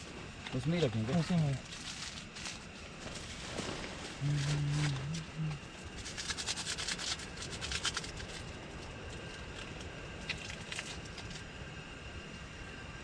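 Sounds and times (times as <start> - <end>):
low hum: 0.0 - 13.0
plastic crinkling: 1.1 - 9.6.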